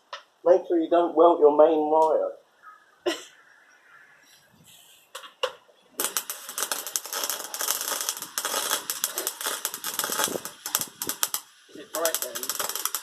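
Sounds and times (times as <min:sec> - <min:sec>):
welder arc crackling: 0:06.0 - 0:13.0.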